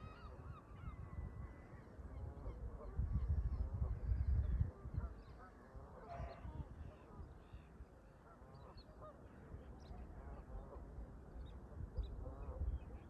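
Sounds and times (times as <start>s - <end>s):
low wind rumble: 0.0s - 5.2s.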